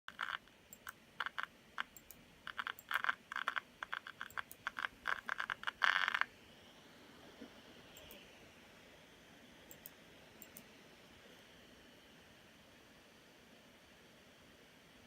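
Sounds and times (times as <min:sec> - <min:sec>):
cooling fan crackling clicks: 0:00.1 - 0:06.3, 0:09.7 - 0:10.7.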